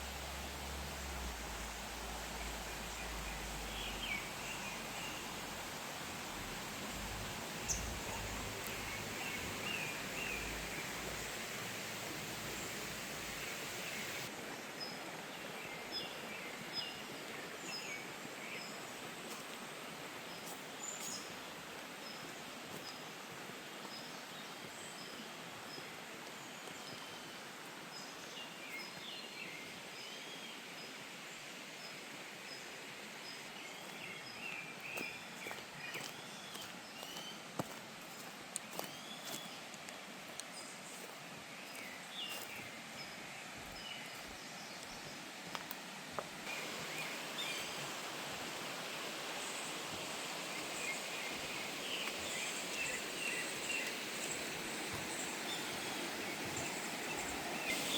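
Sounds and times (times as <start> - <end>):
stream water rushing: 0.0 - 57.9
small birds chirping: 0.4 - 15.0, 33.6 - 45.8, 48.9 - 57.9.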